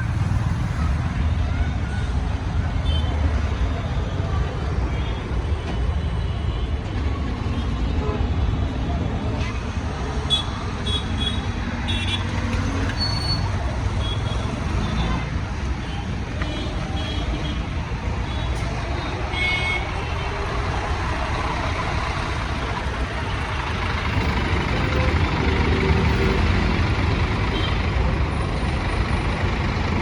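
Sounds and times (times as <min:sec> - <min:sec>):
bus diesel engine pulling away: 0:20.2 - 0:30.0.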